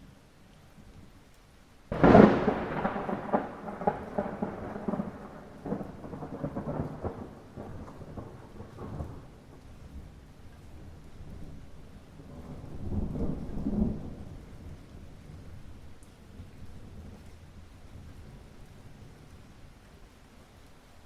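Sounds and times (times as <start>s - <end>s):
light rain: 0.0s - 21.0s
rumbling thunder: 1.9s - 9.6s, 12.2s - 14.7s.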